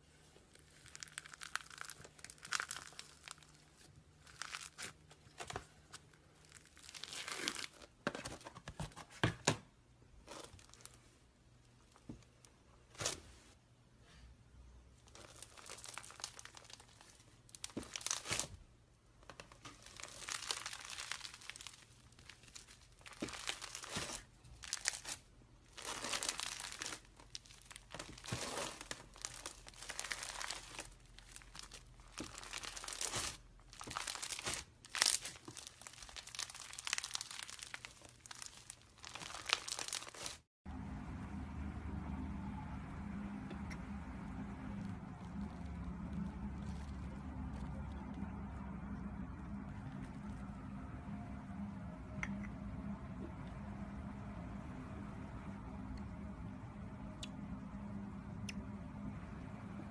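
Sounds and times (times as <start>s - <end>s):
slime crackling when squeezed: 0.5s - 7.8s, 15.0s - 18.6s, 19.2s - 40.4s.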